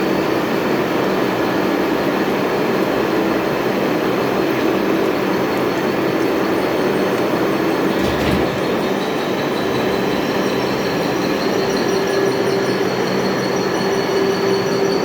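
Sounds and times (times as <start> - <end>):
metal lathe running: 3.0 - 14.7.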